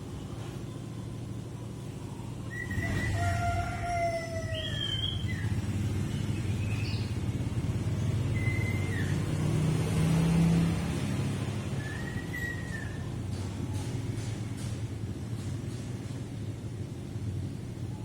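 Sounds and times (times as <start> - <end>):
bird whistled notes: 2.5 - 3.3, 4.5 - 5.5, 8.3 - 9.3, 11.8 - 13.1.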